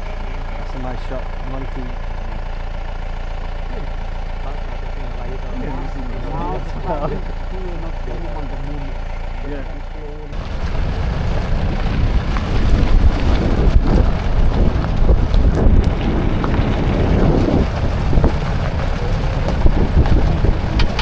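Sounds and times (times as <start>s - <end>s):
low vehicle rumble: 0.0s - 21.0s
wind buffeting microphone: 10.3s - 21.0s.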